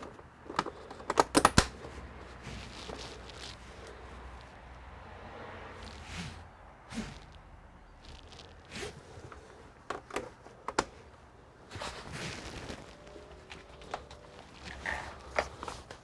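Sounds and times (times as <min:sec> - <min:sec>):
sharp clicks and knocks: 0:00.0 - 0:01.9
rustling and scraping: 0:00.0 - 0:16.0.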